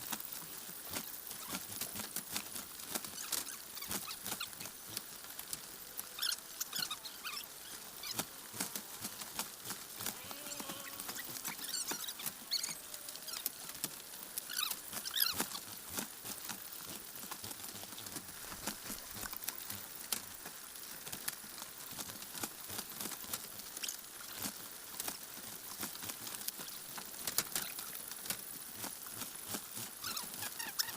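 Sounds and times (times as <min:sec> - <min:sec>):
chicks shuffling and scratching: 0:00.0 - 0:19.9, 0:27.3 - 0:30.9.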